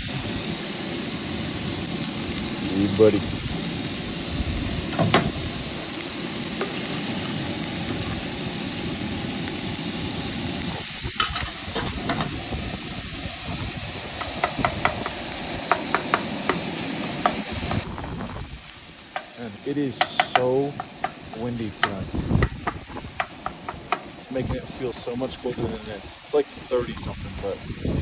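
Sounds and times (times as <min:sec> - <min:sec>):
meat sizzling in a pan: 0:00.0 - 0:28.0
metal clicks on a pan: 0:19.1 - 0:19.4, 0:20.0 - 0:24.1
utensil scraping a pan: 0:19.1 - 0:24.2.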